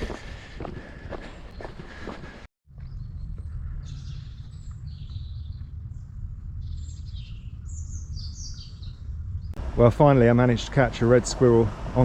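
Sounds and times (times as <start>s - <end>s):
small birds chirping: 1.2s - 9.8s
steady low rumble: 3.0s - 12.0s.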